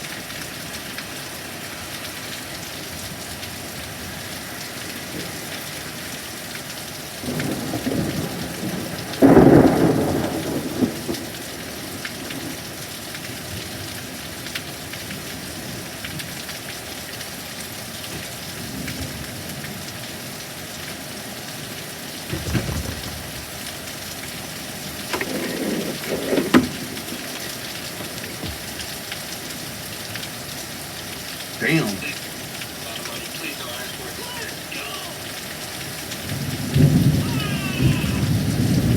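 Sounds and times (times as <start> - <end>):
heavy rain: 0.0 - 38.9
thunder claps: 7.2 - 11.4, 22.2 - 23.7, 24.4 - 29.1, 34.2 - 38.9.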